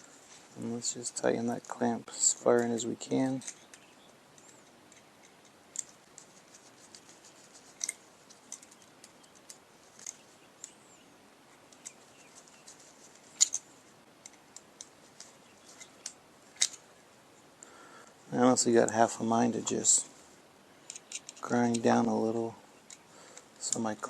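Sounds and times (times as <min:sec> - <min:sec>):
metallic clicks and scrapes: 0:01.5 - 0:10.8, 0:11.5 - 0:16.9, 0:20.8 - 0:22.1.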